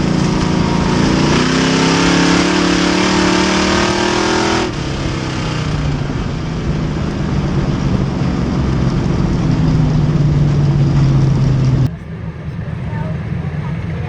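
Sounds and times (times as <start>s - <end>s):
race car engine running: 0.0s - 14.0s.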